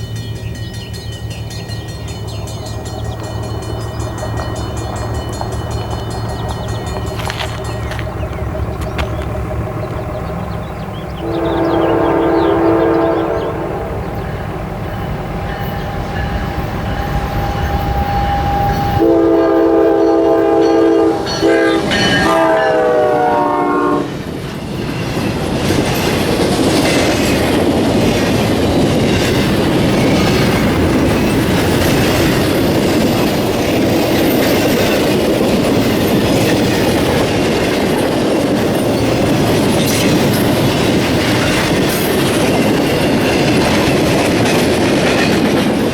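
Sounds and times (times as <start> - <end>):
train wheels clattering: 0.0 - 45.9
locomotive horn blasts: 11.2 - 14.6, 15.2 - 24.1.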